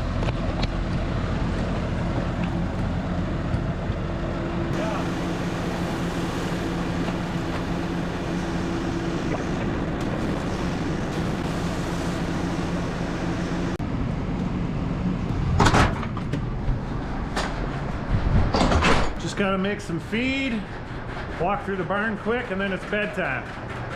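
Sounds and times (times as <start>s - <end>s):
vehicle engine running: 0.0s - 15.4s
road noise: 0.0s - 21.1s
rushing noise: 4.7s - 15.7s.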